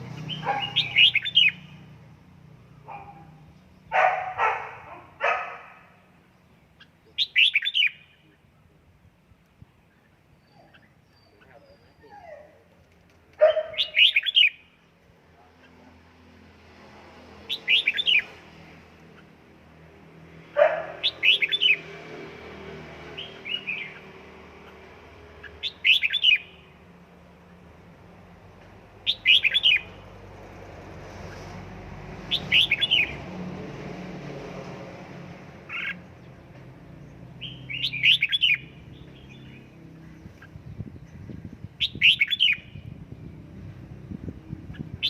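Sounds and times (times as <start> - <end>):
bird singing whistled notes: 0.3 - 1.7, 7.2 - 8.2, 13.5 - 14.7, 17.5 - 18.3, 25.6 - 26.6, 29.1 - 30.0, 37.4 - 39.7, 41.8 - 43.0.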